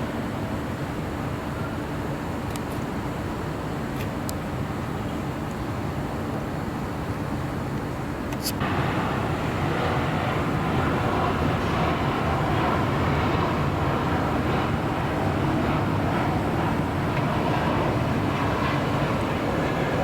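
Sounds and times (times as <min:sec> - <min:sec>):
jet engines rumbling: 0:08.4 - 0:20.0.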